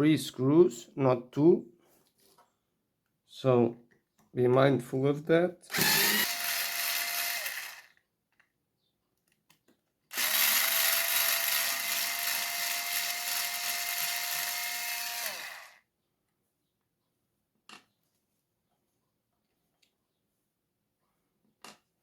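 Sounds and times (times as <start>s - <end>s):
power screwdriver running: 5.7s - 8.0s, 10.1s - 15.8s.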